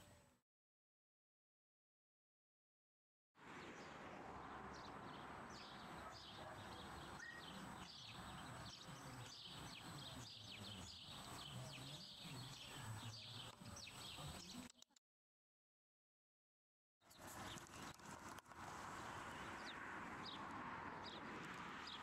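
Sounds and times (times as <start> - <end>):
small birds chirping: 4.7 - 15.0.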